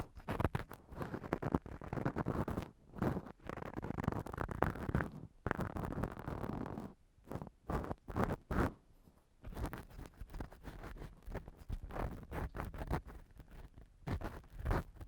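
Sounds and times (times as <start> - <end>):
tools scraping on a microphone: 9.4 - 15.0.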